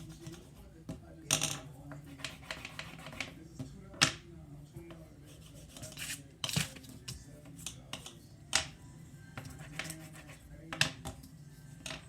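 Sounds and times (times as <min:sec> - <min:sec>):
crayon scratching on paper: 0:02.0 - 0:03.4, 0:05.3 - 0:06.2, 0:09.5 - 0:10.5.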